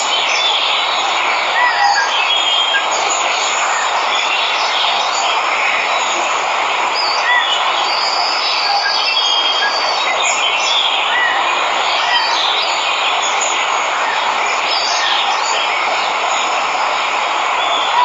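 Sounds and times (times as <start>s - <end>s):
waterfall rushing: 0.0s - 18.0s
birds chirping and whistling: 7.0s - 16.4s.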